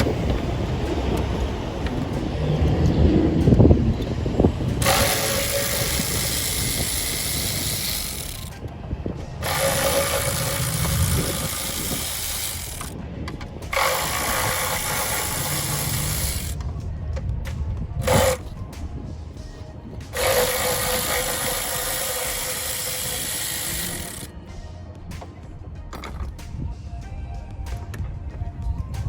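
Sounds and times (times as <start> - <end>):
powered ratchet wrench: 4.7 - 8.6, 9.4 - 13.0, 13.7 - 16.6, 18.0 - 18.6, 20.1 - 24.3.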